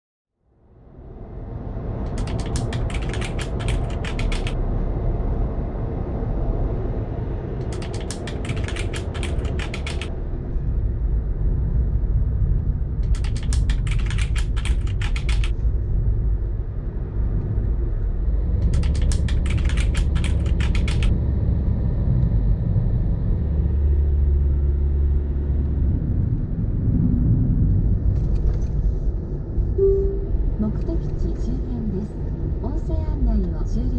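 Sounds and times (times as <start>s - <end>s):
rapid clicking rattle: 2.1s - 4.6s, 7.6s - 10.1s, 13.0s - 15.5s, 18.7s - 21.1s.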